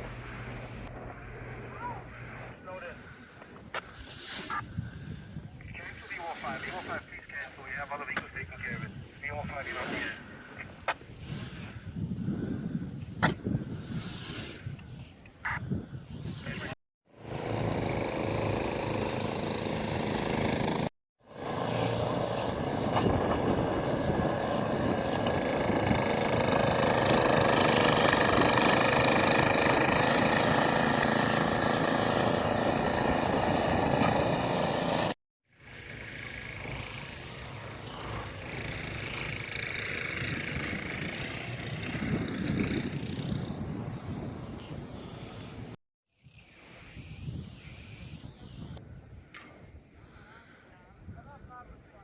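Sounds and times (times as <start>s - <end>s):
engines droning: 29.9s - 45.8s.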